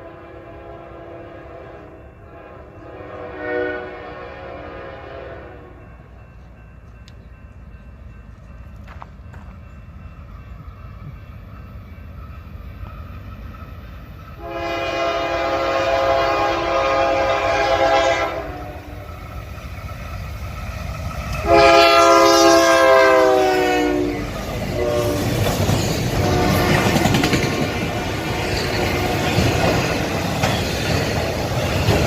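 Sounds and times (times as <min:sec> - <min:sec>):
locomotive air horn blasts: 0:00.0 - 0:05.8, 0:14.4 - 0:19.1, 0:21.4 - 0:25.4, 0:26.1 - 0:27.1, 0:27.9 - 0:29.1
rumble of passing locomotives: 0:00.0 - 0:32.0.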